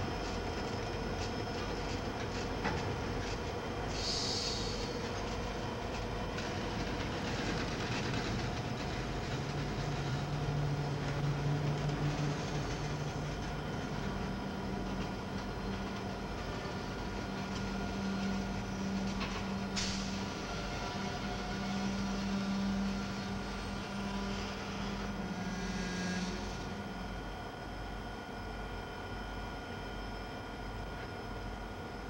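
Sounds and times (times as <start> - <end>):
diesel locomotive engine hum: 0.0 - 32.0
brief high hiss: 3.9 - 5.0
steel wheels rolling on rails: 4.8 - 27.0.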